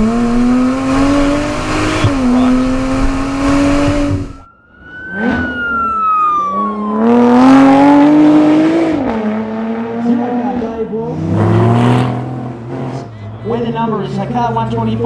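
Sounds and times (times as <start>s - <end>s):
car passing at speed: 0.0s - 4.4s, 11.0s - 14.3s
car engine accelerating hard: 0.0s - 4.5s, 6.9s - 15.0s.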